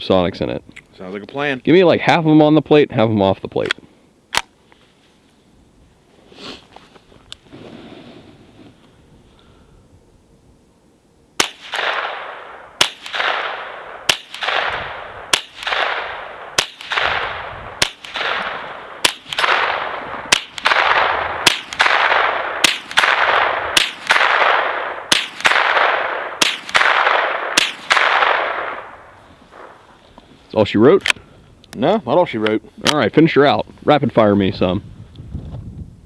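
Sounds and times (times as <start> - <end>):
suppressed rifle shots: 11.4 - 29.8.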